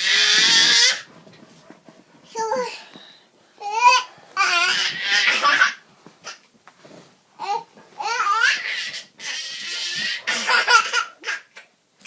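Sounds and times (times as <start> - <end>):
toddler laughing and squealing: 0.0 - 1.1, 3.7 - 6.4, 8.0 - 11.6.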